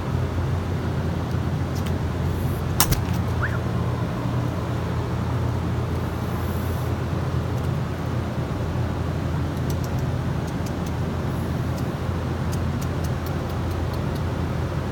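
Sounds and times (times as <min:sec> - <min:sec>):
street traffic rumble: 0:00.0 - 0:14.9
sharp click: 0:02.8 - 0:03.6.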